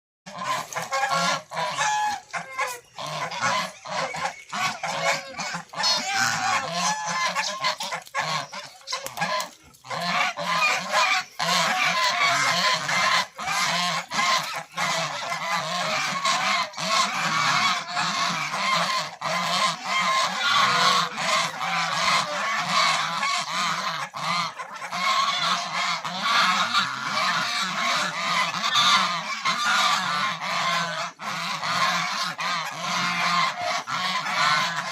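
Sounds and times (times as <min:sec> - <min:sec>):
ducks and geese calling: 0:00.3 - 0:34.9.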